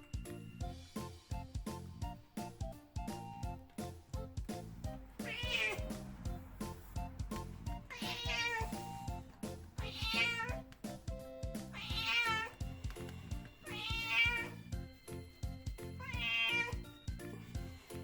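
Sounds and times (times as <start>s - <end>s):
background music: 0.0s - 18.0s
cat meowing: 5.2s - 5.9s, 7.9s - 9.1s, 9.8s - 10.6s, 11.7s - 12.6s, 13.6s - 14.6s, 16.0s - 16.9s.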